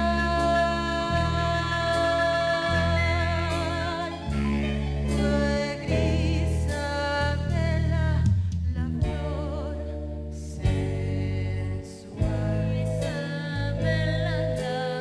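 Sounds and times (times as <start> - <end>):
voices singing with vibrato: 0.0 - 7.9
bass line: 0.0 - 15.0.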